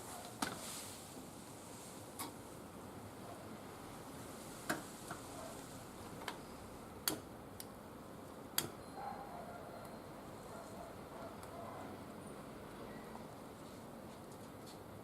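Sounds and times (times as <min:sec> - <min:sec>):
soft fire hiss: 0:00.0 - 0:02.7, 0:04.0 - 0:06.0.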